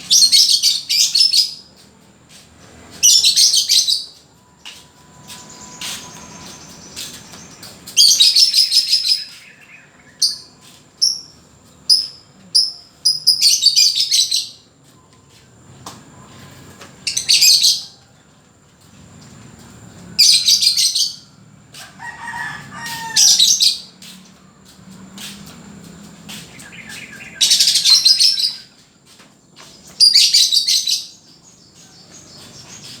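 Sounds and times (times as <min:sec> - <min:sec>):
bird shrill rapid chattering: 0:27.2 - 0:28.7.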